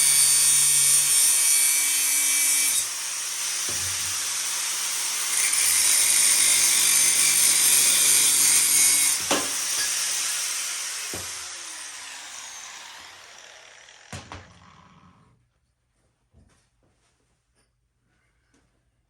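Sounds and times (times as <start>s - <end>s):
power grinder on metal: 0.0s - 15.1s
grinder knock: 7.2s - 10.3s, 11.0s - 12.2s, 13.0s - 14.7s.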